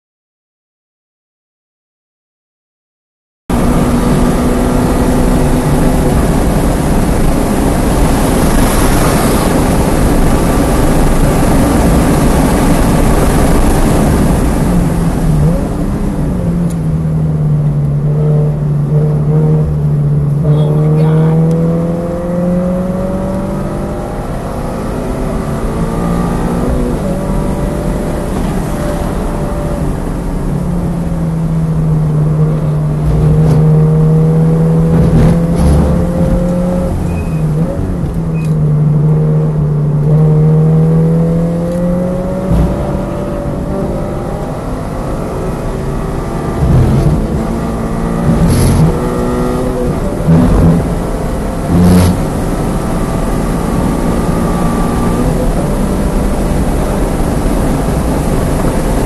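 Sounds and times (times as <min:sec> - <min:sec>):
car engine accelerating: 0:03.5 - 0:59.0
wind rushing: 0:32.3 - 0:37.1, 0:41.2 - 0:52.8.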